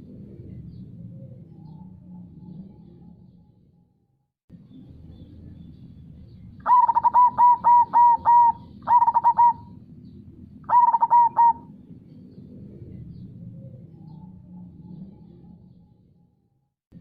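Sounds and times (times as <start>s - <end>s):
dove cooing: 6.6s - 9.8s, 10.6s - 11.8s.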